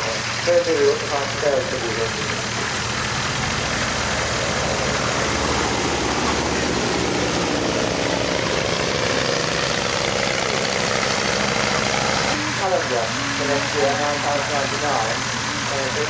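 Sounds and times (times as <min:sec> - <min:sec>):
propeller aircraft engine: 0:00.0 - 0:16.0.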